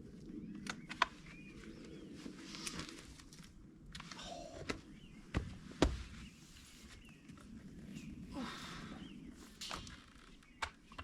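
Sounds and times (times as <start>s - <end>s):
faint bird chirps: 4.1s - 11.0s.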